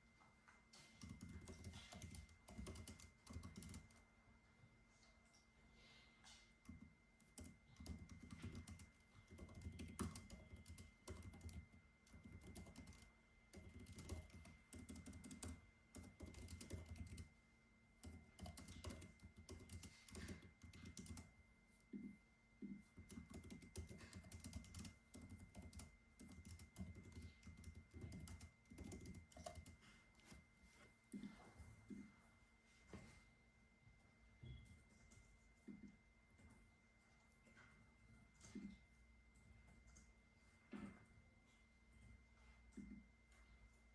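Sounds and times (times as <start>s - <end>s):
faint steady hum: 0.0s - 43.9s
typing on keyboard: 0.9s - 4.0s, 6.6s - 17.3s, 18.0s - 21.4s, 22.9s - 30.4s.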